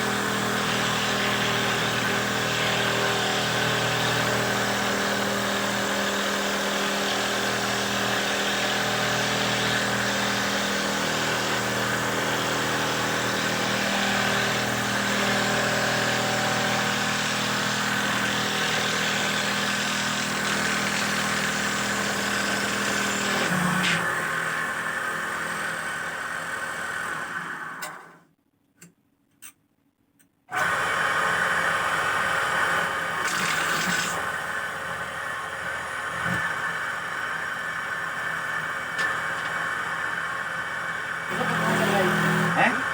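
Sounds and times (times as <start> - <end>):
machine motor droning: 30.6 - 42.9.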